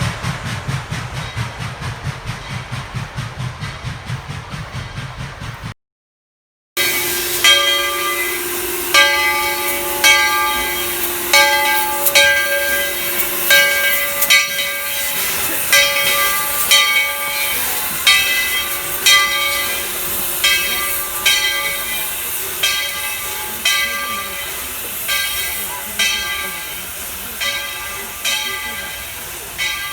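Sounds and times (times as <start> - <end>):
hiss of escaping steam: 0.0 - 5.7, 6.8 - 29.7
steam locomotive bell ringing: 6.8 - 29.9.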